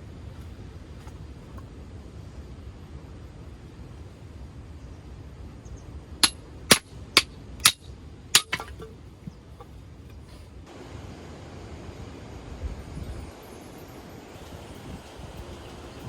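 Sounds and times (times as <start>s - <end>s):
sharp metallic clangs: 6.2s - 9.0s.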